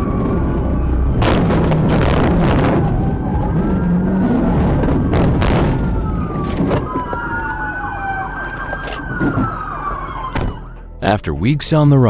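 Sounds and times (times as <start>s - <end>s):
police siren wailing: 0.0s - 11.0s
loud bangs and thuds: 1.2s - 3.1s, 4.6s - 7.2s, 10.3s - 10.8s
background music: 9.0s - 12.0s.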